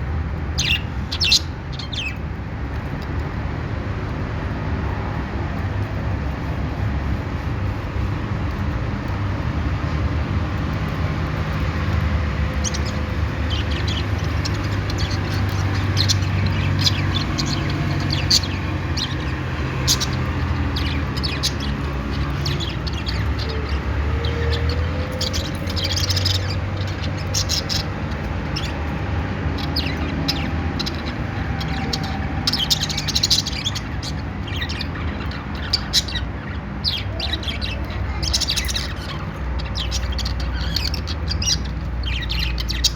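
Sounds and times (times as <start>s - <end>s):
budgerigars chirping: 0.4s - 2.2s, 10.7s - 42.9s.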